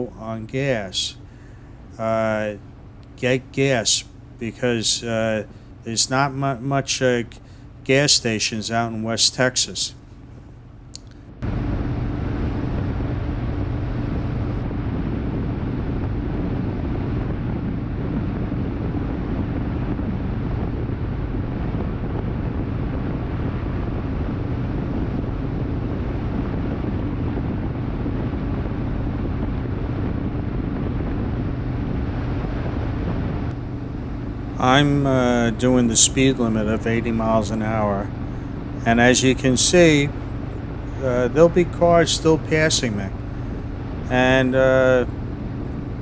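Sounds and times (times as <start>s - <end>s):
wind rush on microphone: 11.3s - 46.0s
motorcycle engine humming: 33.4s - 46.0s.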